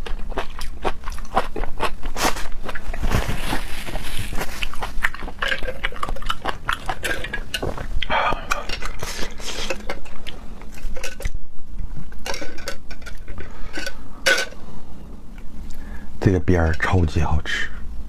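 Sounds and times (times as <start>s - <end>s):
chewing: 0.0s - 11.4s.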